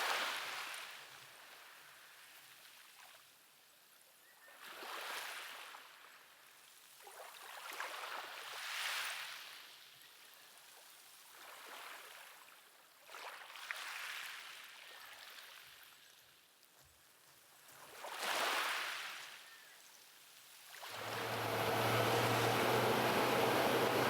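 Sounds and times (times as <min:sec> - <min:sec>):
small waves washing onto shore: 0:20.7 - 0:24.0.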